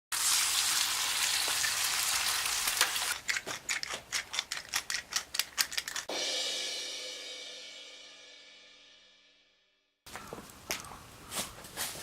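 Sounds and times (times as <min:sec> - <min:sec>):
bacon sizzling and popping: 0:00.1 - 0:06.1.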